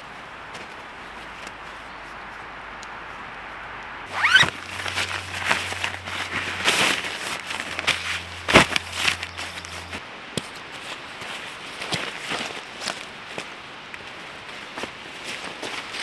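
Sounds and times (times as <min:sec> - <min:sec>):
gear rustling and scraping: 0:04.1 - 0:10.0.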